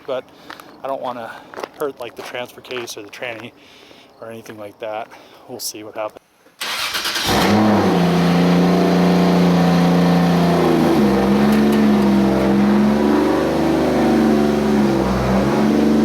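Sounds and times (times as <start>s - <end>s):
car engine running: 7.2s - 16.0s.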